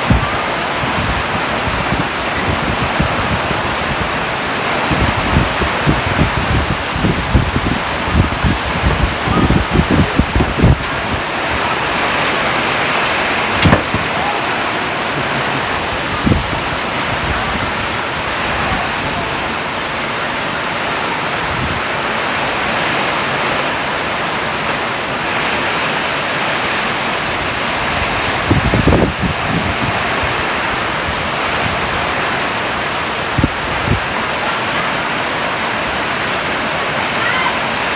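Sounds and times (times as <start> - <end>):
heavy rain: 0.0 - 37.9
low thumps: 13.5 - 14.2.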